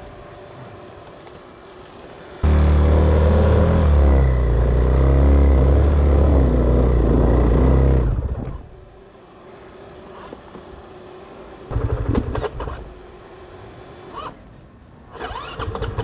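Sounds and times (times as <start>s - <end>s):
dirt bike engine revving: 2.4s - 8.7s.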